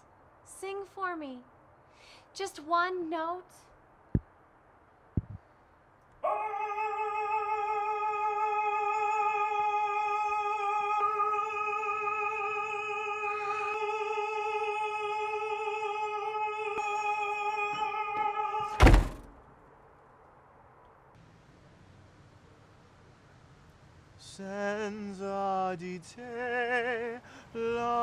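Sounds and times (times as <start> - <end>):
door slamming shut: 18.8 - 19.4.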